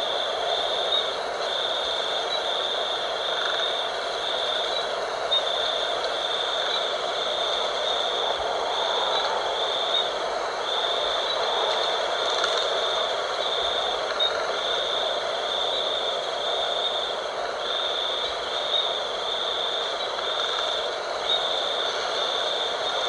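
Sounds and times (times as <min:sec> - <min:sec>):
high insect trill pulsing: 0:00.0 - 0:23.0
night wind: 0:00.0 - 0:23.0.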